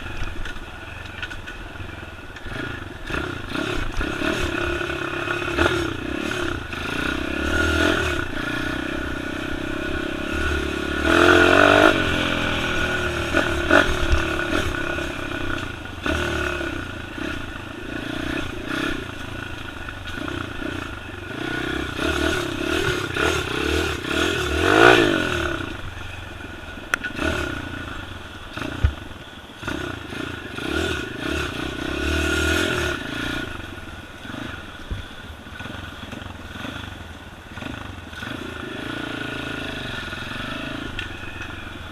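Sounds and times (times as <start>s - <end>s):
dirt bike engine revving: 2.3s - 41.9s.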